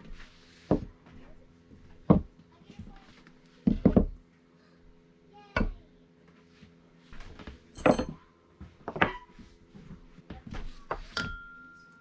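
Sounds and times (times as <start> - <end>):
household objects knocking and clinking: 7.8 - 8.2.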